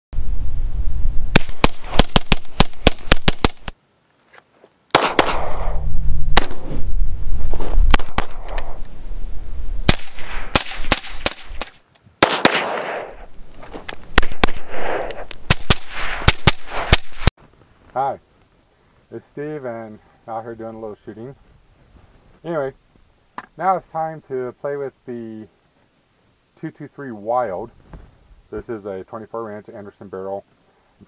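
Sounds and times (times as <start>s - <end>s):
rifle gunfire: 1.3s - 3.7s, 4.9s - 6.7s, 9.9s - 13.2s, 14.2s - 17.3s.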